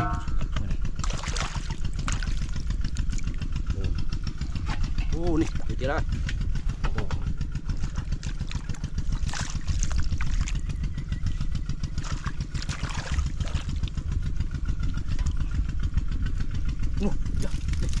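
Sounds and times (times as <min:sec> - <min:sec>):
small engine running: 0:00.0 - 0:18.0.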